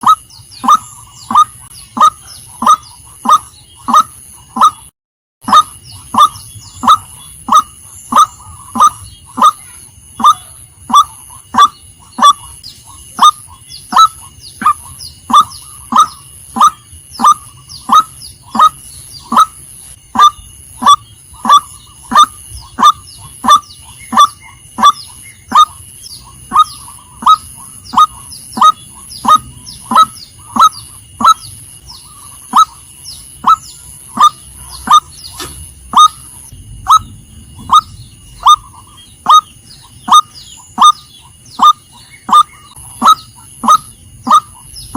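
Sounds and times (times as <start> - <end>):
waterhen calling: 0.0 - 44.9.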